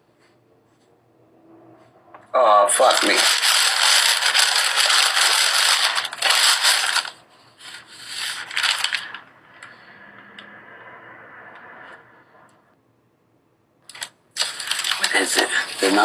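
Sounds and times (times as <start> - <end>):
rubbing and scraping: 1.7 - 9.8.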